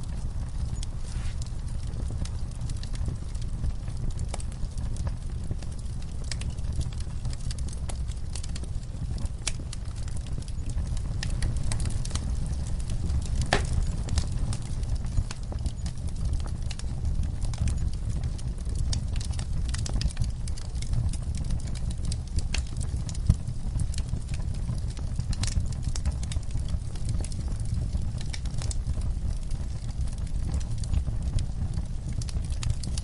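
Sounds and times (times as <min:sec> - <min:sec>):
fireplace fire crackling: 0:00.0 - 0:33.0.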